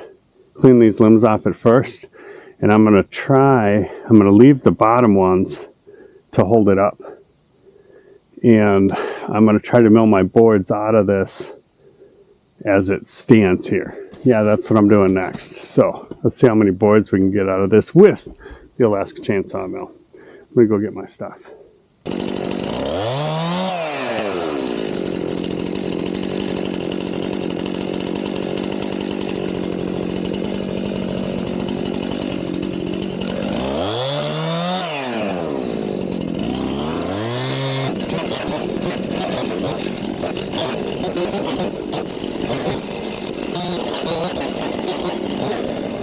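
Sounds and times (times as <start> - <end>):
chainsaw revving and idling: 22.0 - 46.0.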